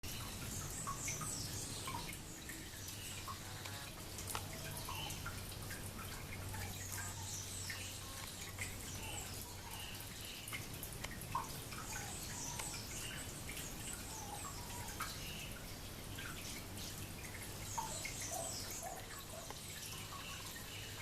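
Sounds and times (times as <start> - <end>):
birds chirping and whistling: 11.7 - 15.6, 16.8 - 21.0.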